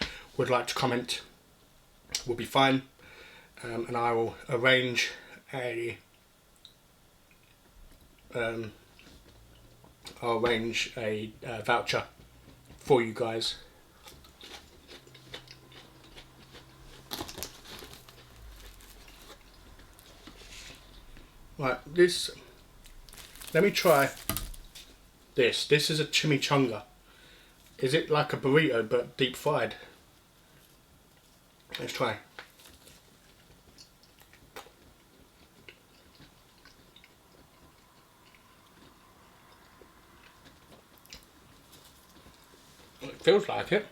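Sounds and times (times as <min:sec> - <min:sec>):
food packaging crinkling: 0:13.9 - 0:21.3, 0:22.2 - 0:25.1, 0:32.3 - 0:36.9.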